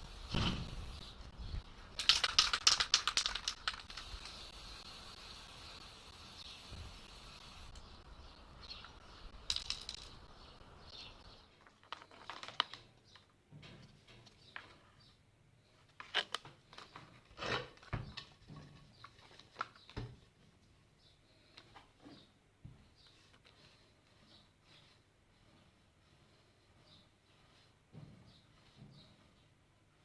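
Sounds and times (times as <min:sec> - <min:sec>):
steady hiss: 0:00.0 - 0:01.4, 0:02.1 - 0:10.9
small hard objects clicking: 0:01.9 - 0:05.2, 0:08.8 - 0:10.4.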